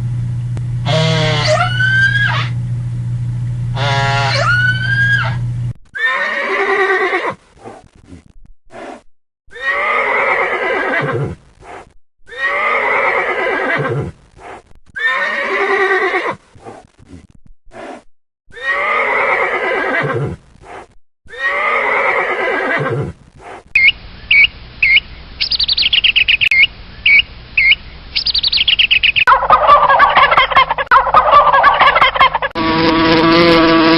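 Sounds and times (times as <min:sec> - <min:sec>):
steady low hum: 0:00.0 - 0:05.8, 0:23.2 - 0:30.1
horse whinnying: 0:00.9 - 0:02.6, 0:03.8 - 0:07.4, 0:09.5 - 0:11.4, 0:12.3 - 0:14.1, 0:15.0 - 0:16.4, 0:18.5 - 0:20.4, 0:21.3 - 0:23.1
gliding wavering call: 0:23.8 - 0:29.3.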